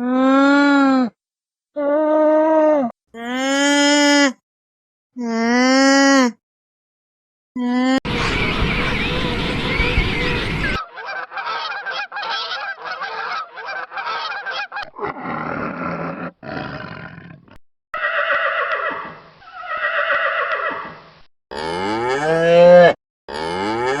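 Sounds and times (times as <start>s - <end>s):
cow mooing: 21.6s - 24.0s.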